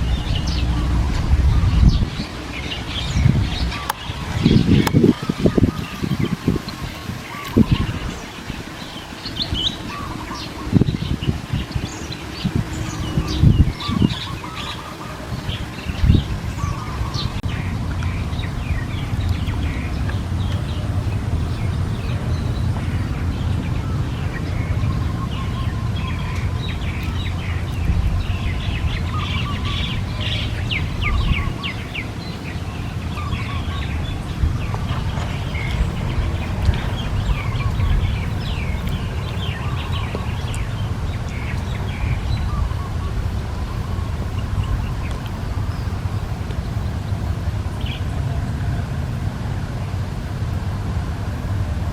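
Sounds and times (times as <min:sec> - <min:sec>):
low rumble: 0:00.0 - 0:07.0
small birds chirping: 0:00.0 - 0:48.4.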